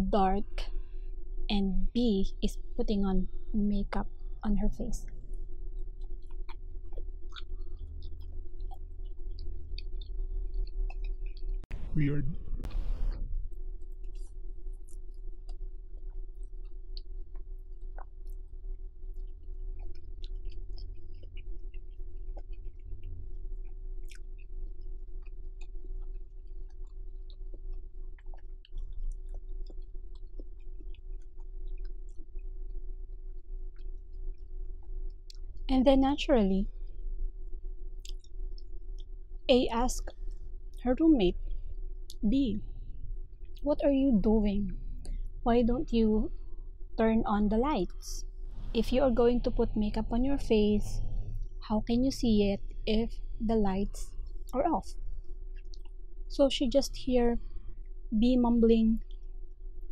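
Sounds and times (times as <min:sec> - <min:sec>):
steady low hum: 0:00.0 - 0:59.9
chewing mouth clicks and smacks: 0:05.7 - 0:11.7, 0:14.0 - 0:18.5, 0:19.1 - 0:32.6, 0:33.3 - 0:35.5, 0:38.0 - 0:39.1, 0:55.5 - 0:56.0.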